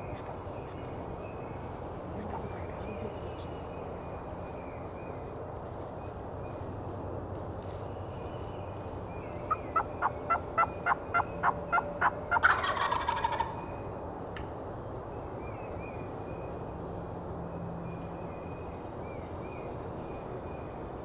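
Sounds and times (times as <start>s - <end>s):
turkey gobbling: 9.5s - 13.6s
turkey yelps: 9.5s - 13.6s.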